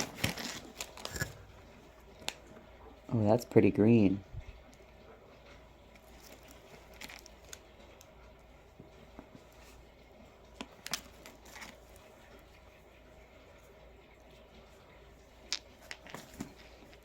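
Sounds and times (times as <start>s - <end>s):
rocks clicking and rustling: 0.0s - 1.4s, 6.0s - 7.7s, 10.6s - 12.0s, 15.4s - 17.0s.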